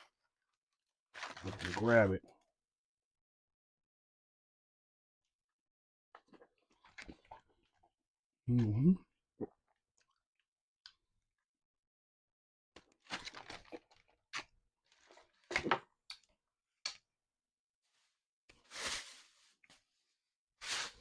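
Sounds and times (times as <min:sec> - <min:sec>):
crackling and tearing noises: 0:01.2 - 0:02.0.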